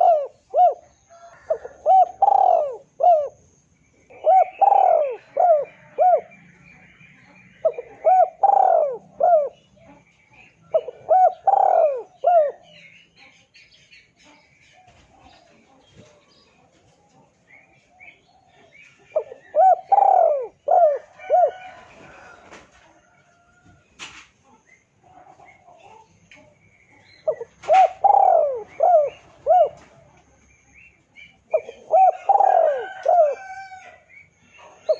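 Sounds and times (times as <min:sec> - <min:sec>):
dove cooing: 0:00.0 - 0:12.8, 0:17.6 - 0:23.6, 0:26.9 - 0:30.2, 0:31.2 - 0:34.9
small birds chirping: 0:00.0 - 0:34.9.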